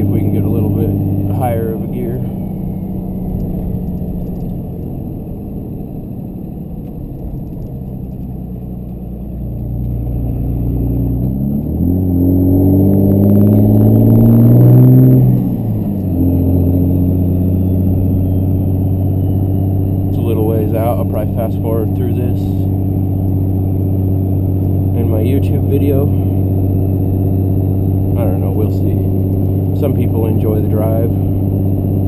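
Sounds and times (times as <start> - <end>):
diesel engine accelerating: 0.0 - 32.0.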